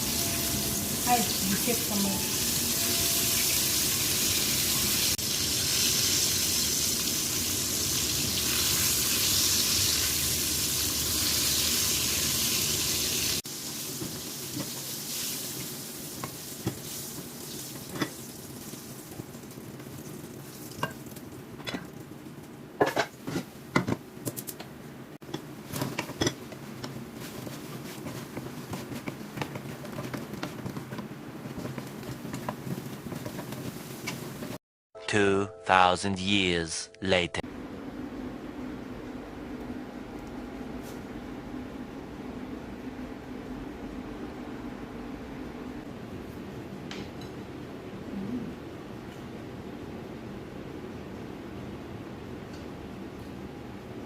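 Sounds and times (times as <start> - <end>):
chicken wings sizzling: 0.0 - 22.5.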